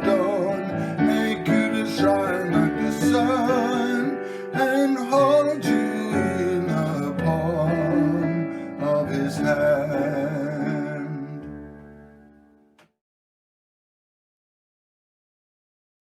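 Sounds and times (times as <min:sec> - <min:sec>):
person singing a hymn: 0:00.0 - 0:11.6.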